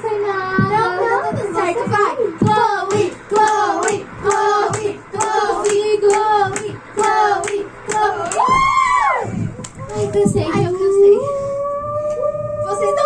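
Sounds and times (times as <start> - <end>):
children singing: 0.7 - 8.4
hand claps: 2.9 - 8.6, 9.6 - 9.8.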